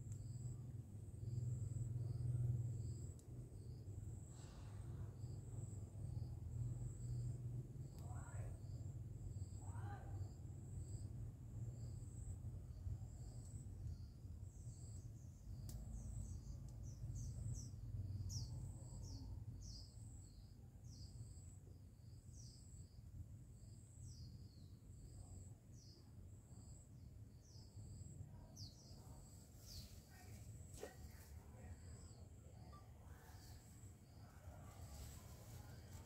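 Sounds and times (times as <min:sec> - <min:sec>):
short rustle: 0:34.7 - 0:36.0.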